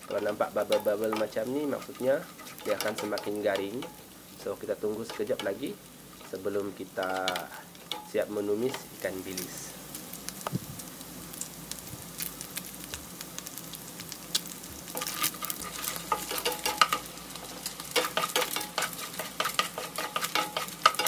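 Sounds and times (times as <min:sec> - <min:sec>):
wooden spatula scraping: 0:00.0 - 0:04.0, 0:14.9 - 0:21.0
food sizzling in oil: 0:00.0 - 0:21.0.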